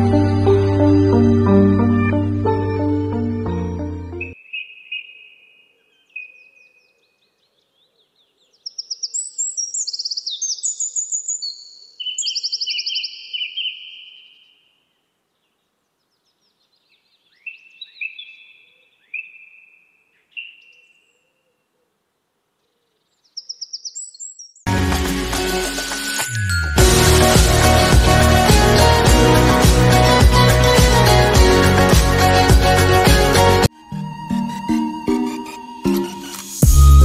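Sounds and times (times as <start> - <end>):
songbird singing: 1.1 - 24.7.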